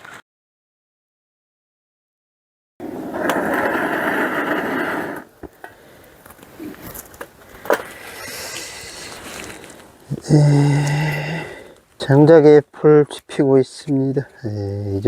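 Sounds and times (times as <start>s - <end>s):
firewood scraping rush: 2.8s - 10.2s.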